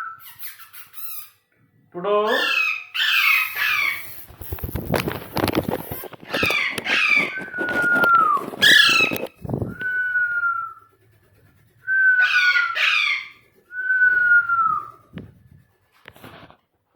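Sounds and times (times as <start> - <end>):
parrot squawking: 2.2 - 4.2, 6.3 - 7.5, 8.6 - 9.3, 12.2 - 13.5
long whistled notes: 7.2 - 10.9, 11.8 - 12.8, 13.7 - 15.1.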